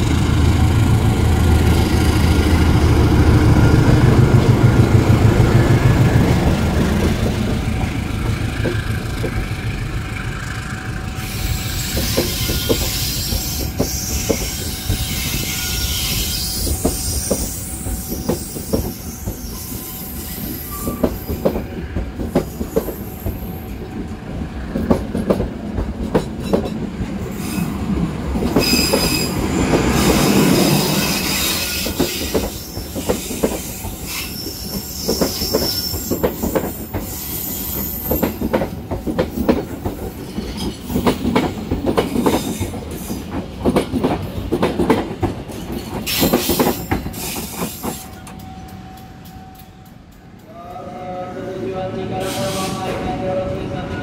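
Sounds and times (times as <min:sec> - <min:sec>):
high-pitched wheel squeals: 0:11.2 - 0:21.4, 0:28.6 - 0:29.4, 0:30.0 - 0:38.2
train wheels clacking over rail joints: 0:11.6 - 0:19.5, 0:20.8 - 0:27.2, 0:28.4 - 0:50.2.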